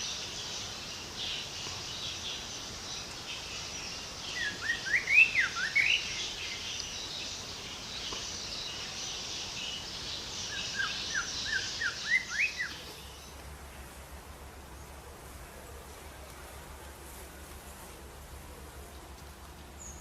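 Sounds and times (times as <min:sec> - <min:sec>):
high-pitched background hiss: 0:00.0 - 0:20.0
songbird whistling: 0:04.3 - 0:06.2, 0:10.5 - 0:12.8.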